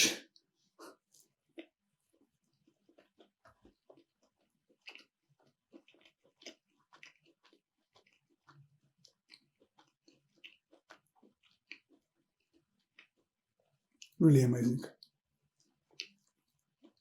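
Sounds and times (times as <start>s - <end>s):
person chewing: 1.1s - 13.3s.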